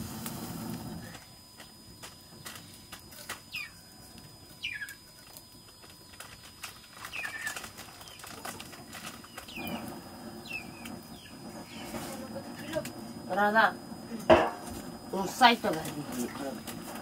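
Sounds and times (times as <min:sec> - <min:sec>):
small bird chirping: 0:03.5 - 0:08.5, 0:09.1 - 0:12.7.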